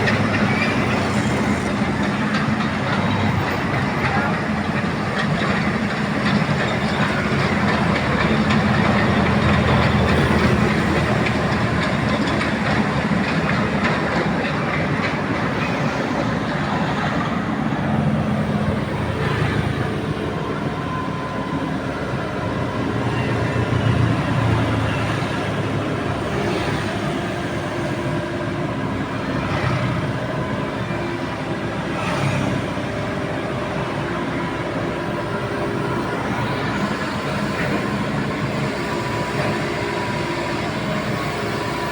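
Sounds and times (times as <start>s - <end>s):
excavator diesel engine clattering: 0.0s - 41.9s.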